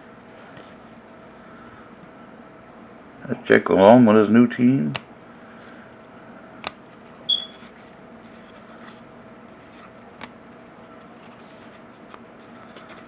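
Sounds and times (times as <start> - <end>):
room hum: 0.0 - 13.0
high-pitched squeak: 7.3 - 7.6.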